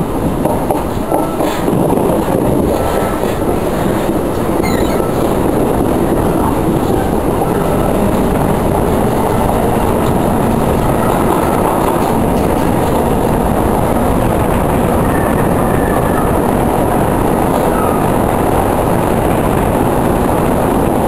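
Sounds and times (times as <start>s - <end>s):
wheels rumbling on track: 0.0s - 21.0s
faint high squeal: 4.6s - 5.1s.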